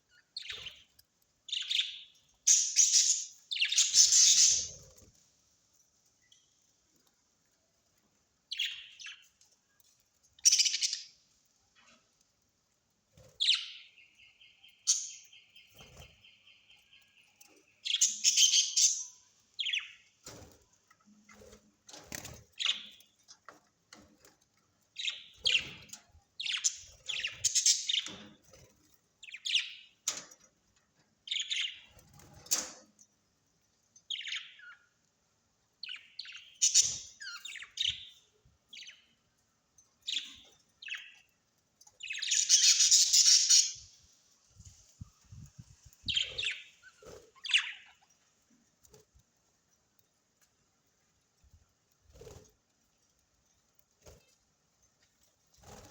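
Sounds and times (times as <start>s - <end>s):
birds chirping: 0.0s - 5.1s, 8.5s - 9.4s, 10.4s - 11.2s, 13.3s - 20.1s, 24.9s - 28.5s, 29.2s - 30.1s, 35.8s - 39.3s, 40.0s - 44.1s, 45.1s - 49.0s.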